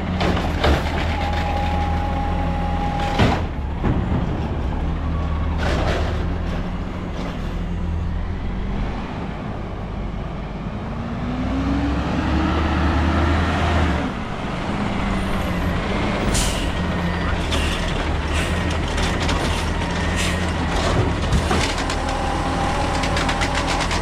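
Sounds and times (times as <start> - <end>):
garbage truck engine running: 0.0 - 10.9, 14.1 - 24.0.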